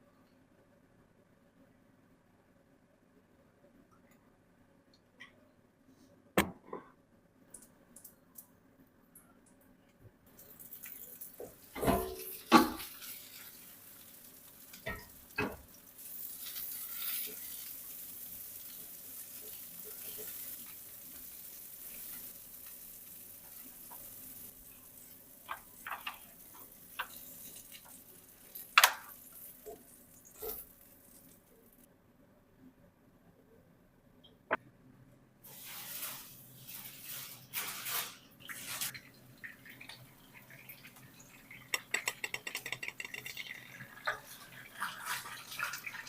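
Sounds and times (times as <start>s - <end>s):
food sizzling in a pan: 10.4s - 31.9s, 35.4s - 46.0s.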